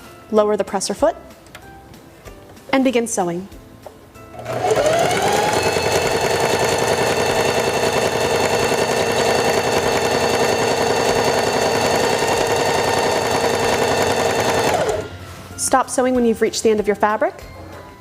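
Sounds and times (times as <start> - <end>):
sewing machine stitching: 4.4 - 15.1.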